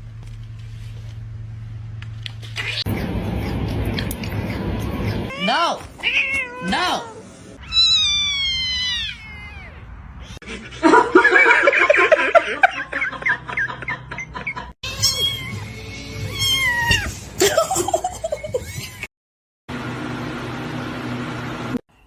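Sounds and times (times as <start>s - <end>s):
cats meowing: 2.5s - 10.4s, 14.9s - 17.2s.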